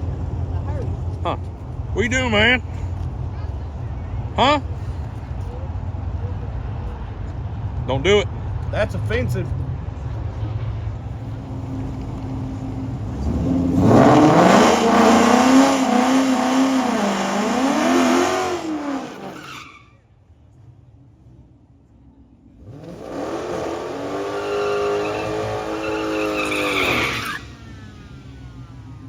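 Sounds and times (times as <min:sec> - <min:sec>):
drag car engine revving: 0:11.0 - 0:19.8, 0:22.6 - 0:29.0.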